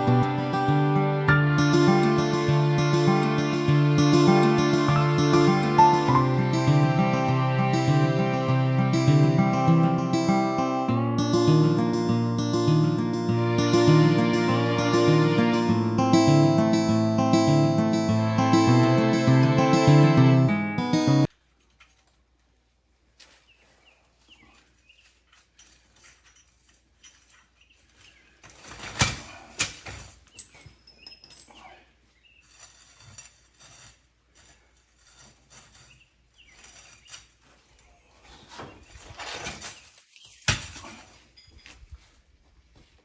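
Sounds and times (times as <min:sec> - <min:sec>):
metal parts knocking and clinking: 0:25.3 - 0:31.6.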